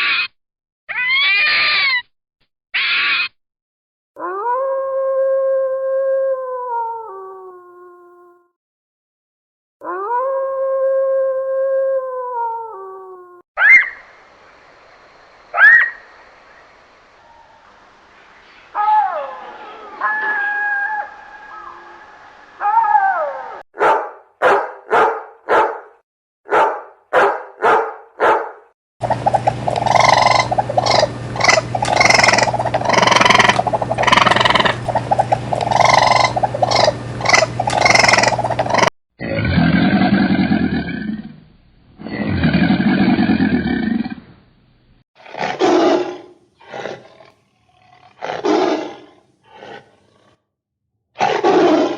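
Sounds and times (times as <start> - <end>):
steady hum: 29.0 - 38.9
big cat calls: 29.8 - 41.0
big cat low roars: 35.7 - 41.4, 42.0 - 44.2, 45.2 - 50.4.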